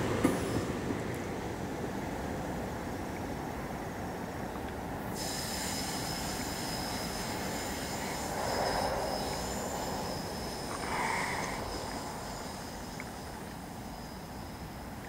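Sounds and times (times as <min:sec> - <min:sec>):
train rumbling on track: 0:00.0 - 0:15.0
high-pitched wheel squeal: 0:05.2 - 0:15.0.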